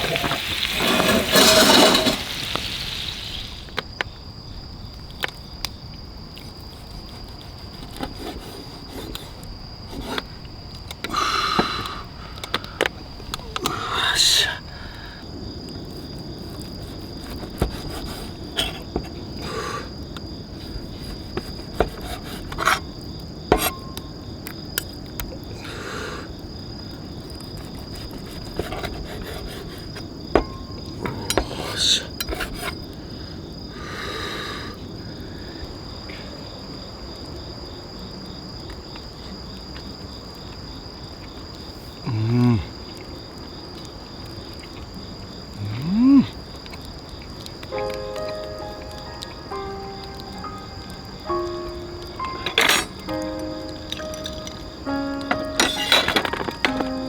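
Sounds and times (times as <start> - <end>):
cookware and utensils clattering: 0.0 - 2.6, 52.2 - 57.0
insects chirring: 0.0 - 57.0.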